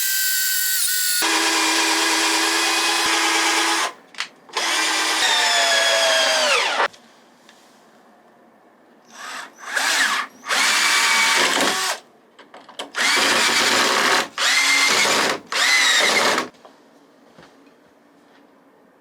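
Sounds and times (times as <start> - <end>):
power drill motor whine: 4.6 - 6.9, 9.1 - 12.0, 13.0 - 16.5.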